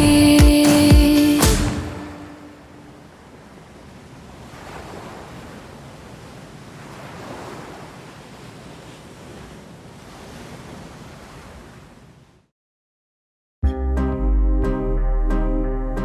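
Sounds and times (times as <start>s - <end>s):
music: 0.0s - 2.1s, 13.6s - 16.0s
ocean waves washing in: 0.0s - 12.5s.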